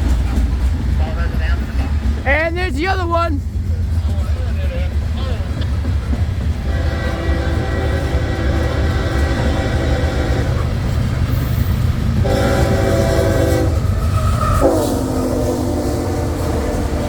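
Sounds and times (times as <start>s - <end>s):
passing train rumble: 0.0s - 17.0s
locomotive horn blasts: 6.6s - 10.9s, 12.2s - 17.0s.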